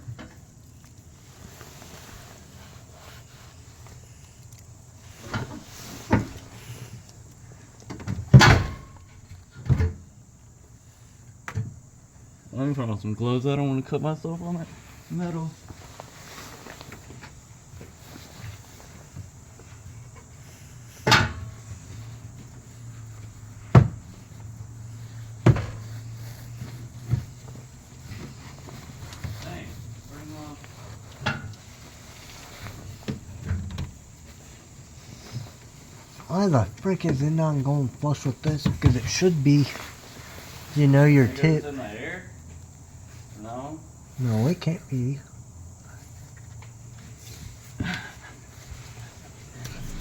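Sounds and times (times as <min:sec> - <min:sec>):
low steady hum: 0:49.5 - 0:50.0.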